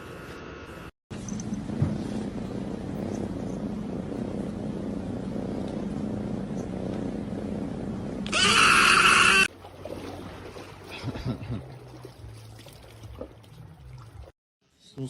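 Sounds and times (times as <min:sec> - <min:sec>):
loud high-pitched cry: 0:08.3 - 0:09.5.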